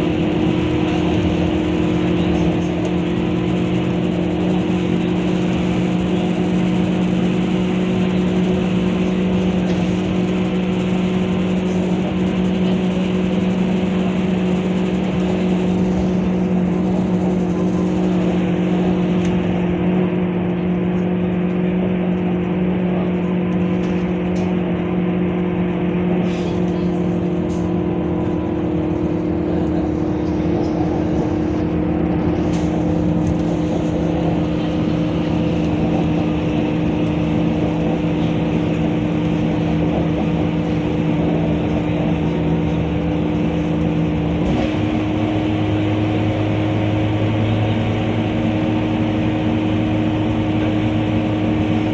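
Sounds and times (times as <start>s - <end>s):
bus engine hum: 0.0s - 51.9s.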